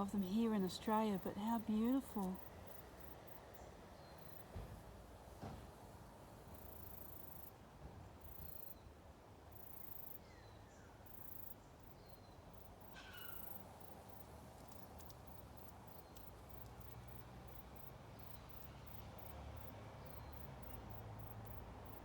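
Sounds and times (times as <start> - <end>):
low steady hiss: 0.0 - 22.0
distant bird chirps: 12.0 - 13.6.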